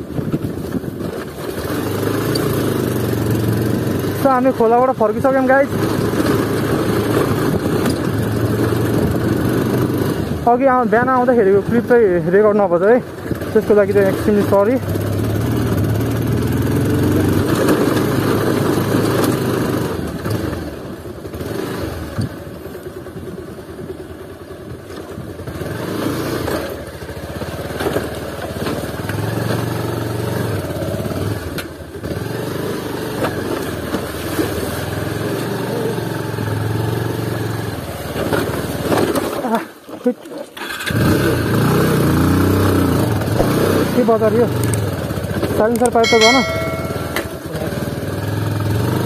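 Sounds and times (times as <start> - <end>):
motorcycle engine running: 0.0 - 25.8, 41.7 - 49.0.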